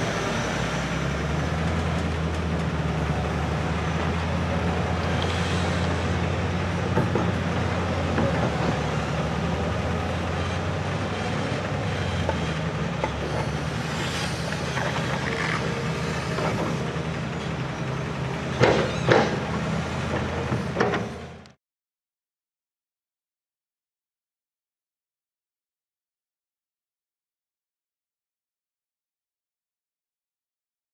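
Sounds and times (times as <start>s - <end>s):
diesel engine droning: 0.0s - 21.6s.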